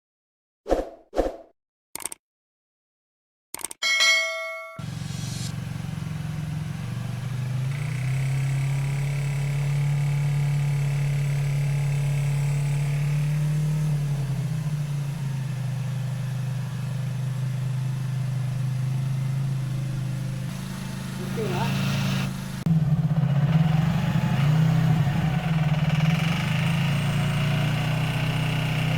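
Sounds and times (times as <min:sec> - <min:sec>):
short chime: 0:03.8 - 0:04.8
motorcycle engine idling: 0:04.8 - 0:13.1, 0:14.0 - 0:28.9.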